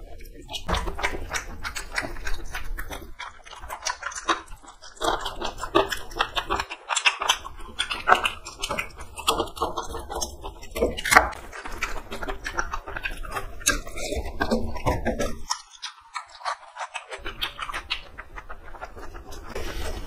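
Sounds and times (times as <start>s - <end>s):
wet chewing and lip-smacking: 0.0s - 20.0s.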